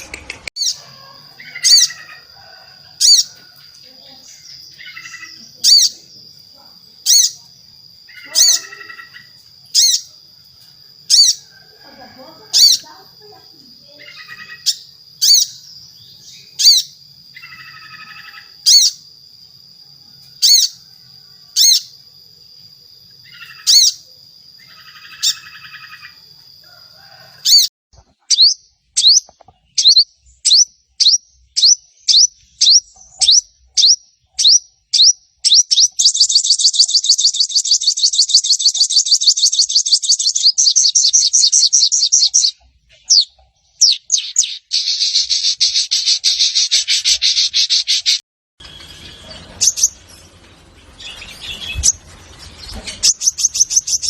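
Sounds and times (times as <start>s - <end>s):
bird buzzy chatters: 8.1s - 10.1s, 36.0s - 48.2s.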